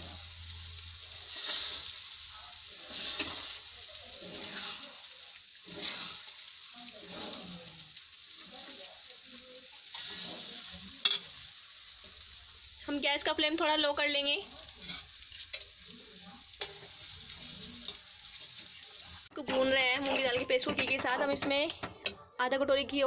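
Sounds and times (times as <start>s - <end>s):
paste sizzling in ghee: 0.0s - 21.8s
metal spatula scraping a pan: 1.0s - 8.8s, 9.7s - 12.3s, 14.4s - 22.2s.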